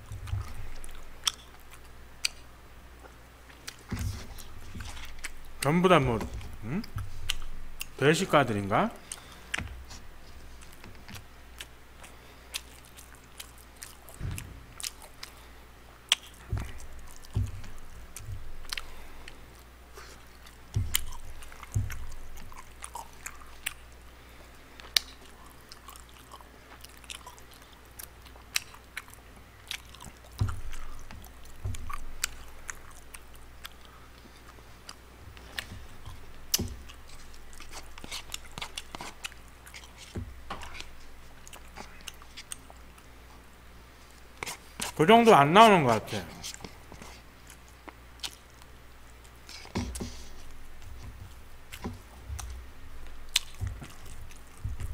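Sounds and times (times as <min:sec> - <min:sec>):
person chewing: 0:00.0 - 0:54.9
low thumps: 0:16.4 - 0:18.8, 0:20.7 - 0:22.6.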